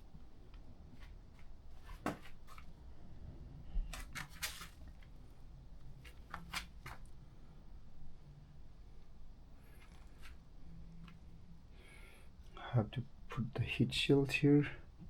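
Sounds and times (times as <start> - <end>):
low background hum: 0.0 - 15.0
clicks and rustles of handling: 3.8 - 7.2.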